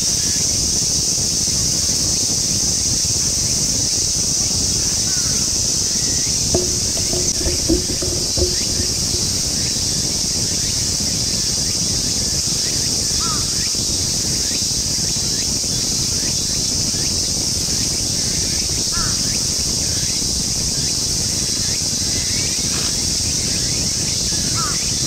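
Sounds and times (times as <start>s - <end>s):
insect chorus buzzing: 6.6s - 9.4s.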